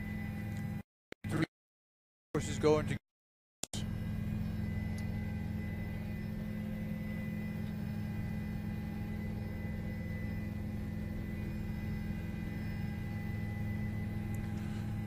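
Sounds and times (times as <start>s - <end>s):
electrical hum: 3.7s - 15.0s.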